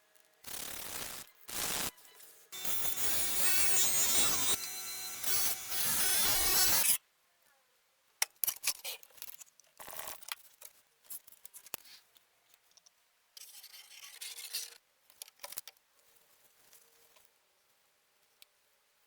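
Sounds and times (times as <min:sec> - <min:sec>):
scraping on metal blade: 0:02.6 - 0:07.0.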